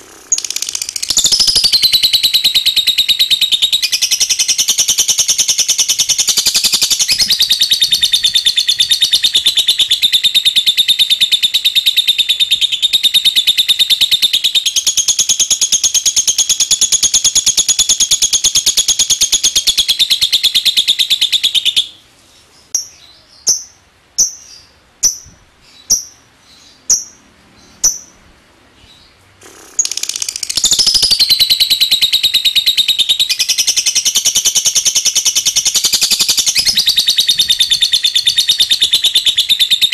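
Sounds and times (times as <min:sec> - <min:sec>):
bird rattling trill: 0:00.0 - 0:11.8, 0:29.4 - 0:39.9
bird chirps: 0:00.0 - 0:28.2, 0:28.8 - 0:39.9.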